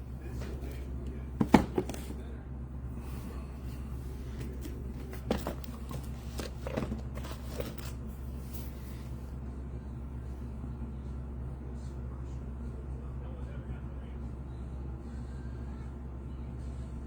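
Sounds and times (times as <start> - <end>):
steady low hum: 0.0 - 17.0
clicks and knocks of packaging: 1.4 - 2.2, 4.4 - 8.0
light scrapes and crunches: 4.3 - 9.1.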